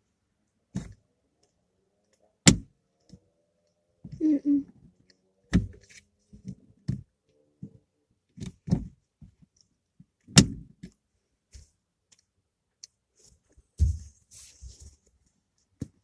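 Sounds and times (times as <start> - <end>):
knocks thumps and clicks: 5.5 - 11.0.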